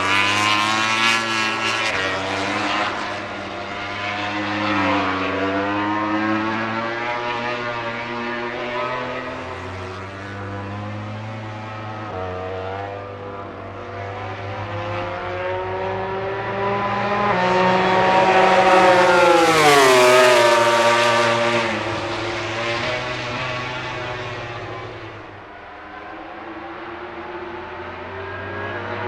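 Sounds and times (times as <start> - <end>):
racing motorcycle passing by: 0.0 - 29.0.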